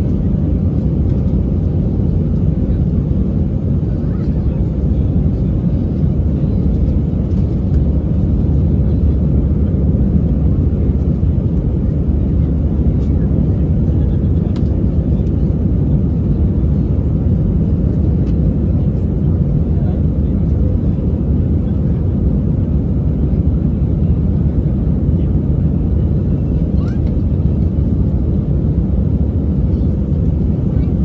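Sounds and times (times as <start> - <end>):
airliner engines rumbling in cabin: 0.0 - 31.0.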